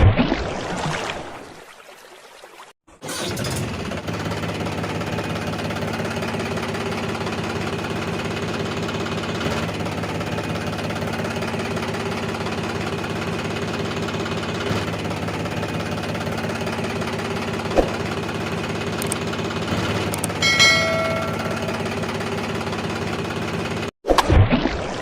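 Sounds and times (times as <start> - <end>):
tractor engine idling: 4.0 - 23.9.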